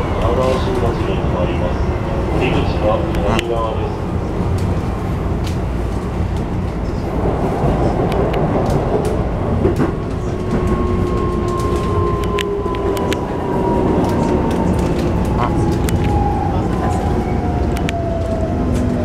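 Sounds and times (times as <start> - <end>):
train wheels rumbling on rail: 0.0 - 19.0
rail joint clicks: 4.4 - 19.0.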